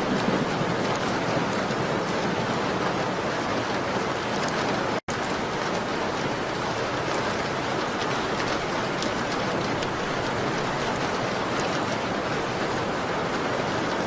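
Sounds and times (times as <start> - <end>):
rain on a window: 0.0 - 14.0
raindrop ticks: 0.1 - 1.4, 4.4 - 12.6.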